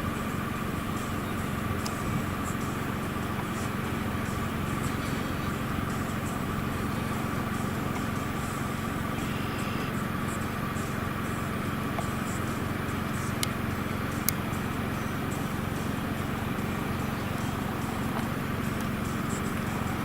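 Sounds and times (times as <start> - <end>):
road noise: 0.0 - 20.0
vehicle engine drone: 0.0 - 20.0.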